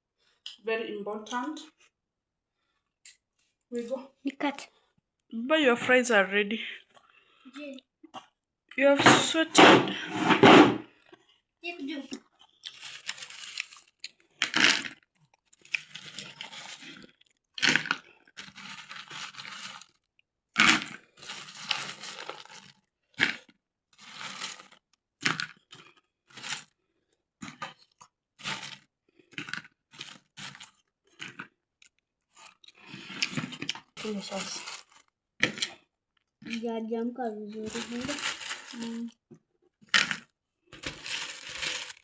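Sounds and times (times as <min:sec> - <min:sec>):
fries crunching when chewed: 0:12.3 - 0:36.6, 0:37.7 - 0:39.2, 0:39.8 - 0:42.0.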